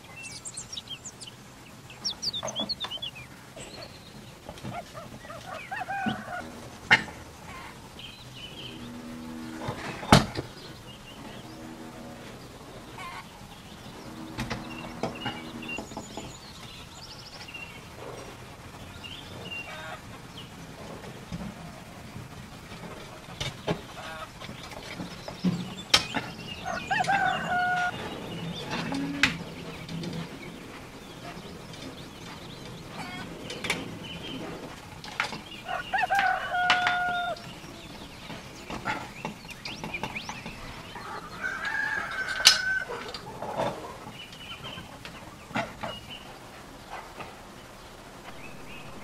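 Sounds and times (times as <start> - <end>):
bird crowing: 2.0 - 16.6, 17.9 - 20.5, 25.7 - 39.1, 39.9 - 45.0.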